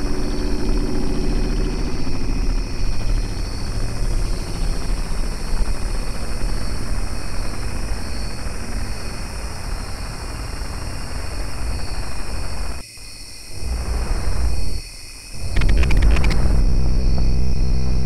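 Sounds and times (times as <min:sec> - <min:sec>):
thin high hum: 0:13.5 - 0:18.0
loud rumbling noise: 0:13.6 - 0:14.7, 0:15.4 - 0:18.0.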